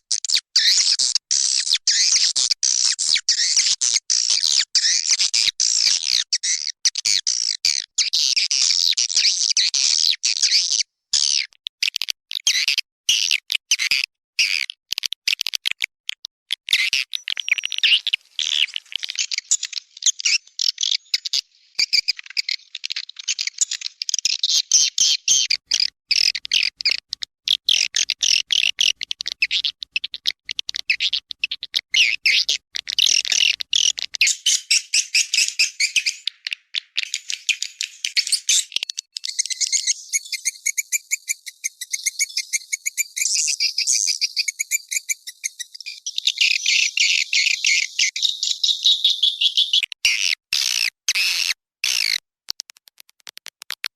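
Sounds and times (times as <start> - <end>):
swiftlets twittering and chirping: 17.2 - 31.2, 33.0 - 52.2.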